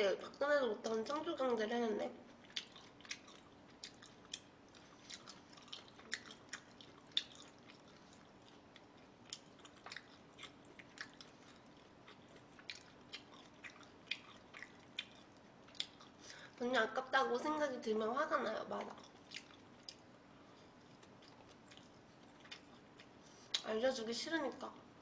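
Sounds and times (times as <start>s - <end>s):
person chewing food: 2.2s - 16.6s, 18.8s - 23.7s.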